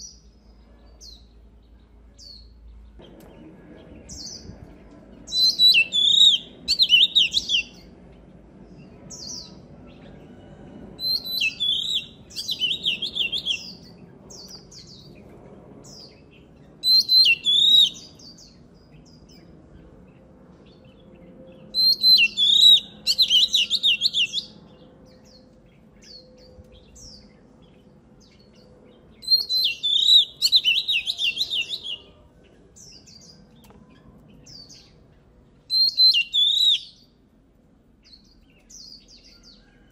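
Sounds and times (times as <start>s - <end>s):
bird singing whistled notes: 5.3s - 7.9s, 11.0s - 15.2s, 15.8s - 19.4s, 20.7s - 32.2s, 35.7s - 37.2s.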